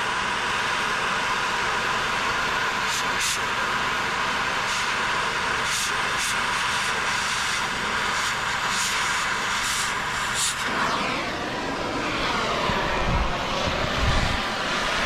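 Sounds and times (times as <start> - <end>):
gas torch hissing: 4.5 - 15.0.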